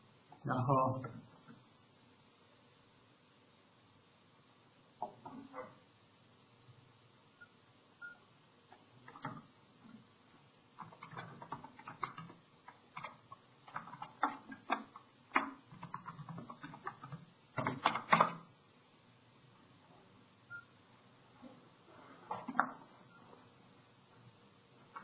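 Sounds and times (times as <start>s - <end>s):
computer keyboard typing: 9.1s - 9.5s, 10.8s - 18.4s.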